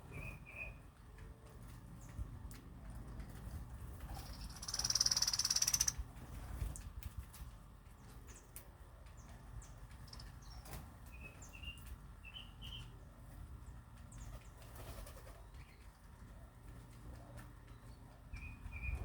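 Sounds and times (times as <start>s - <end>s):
small birds chirping: 4.0s - 6.2s, 7.8s - 19.0s.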